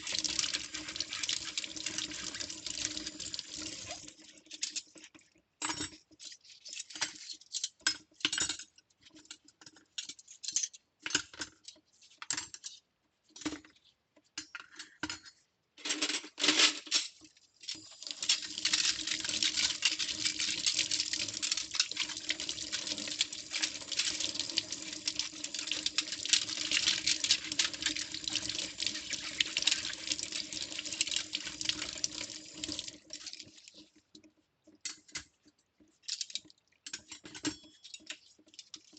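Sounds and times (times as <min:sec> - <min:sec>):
cutlery clinking and splashing: 0:14.6 - 0:33.8, 0:36.0 - 0:38.9.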